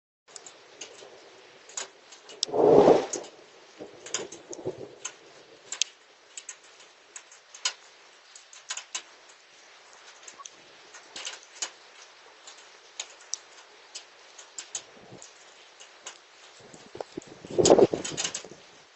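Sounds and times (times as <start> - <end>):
faint rain hiss: 0.3 - 18.9
hailstones striking hard surface: 10.8 - 18.6.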